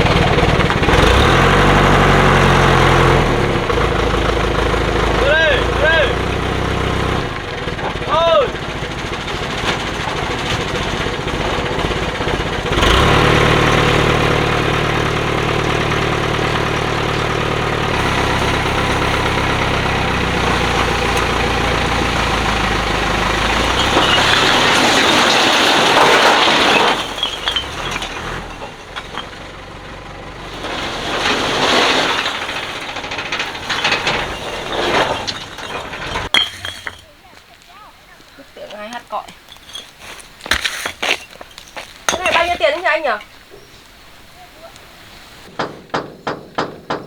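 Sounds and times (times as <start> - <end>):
truck engine running: 0.0 - 36.4
quiet clatters: 16.8 - 44.0.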